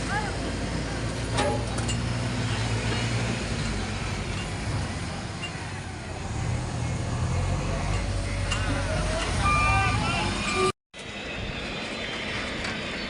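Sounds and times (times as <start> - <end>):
diesel engine under changing load: 0.0 - 13.0.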